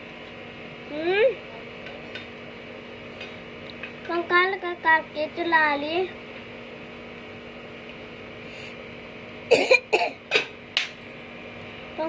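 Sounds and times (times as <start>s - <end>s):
steady background hum: 0.0s - 12.0s
person coughing: 9.5s - 10.5s.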